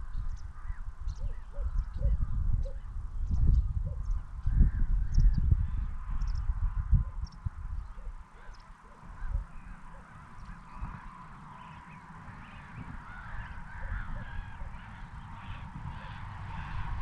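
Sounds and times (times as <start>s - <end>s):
waterbirds honking: 9.5s - 17.0s.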